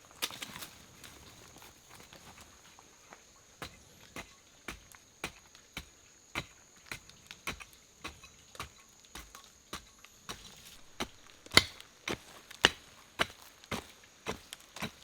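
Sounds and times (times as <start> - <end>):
blade chopping wood: 3.6 - 15.0.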